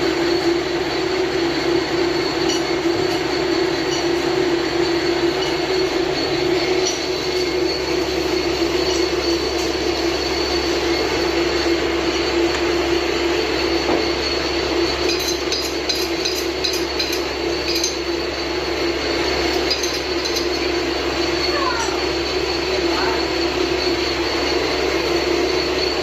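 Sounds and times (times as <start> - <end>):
metal lathe running: 0.0 - 26.0
light metallic clinks: 15.1 - 18.1, 19.5 - 20.8.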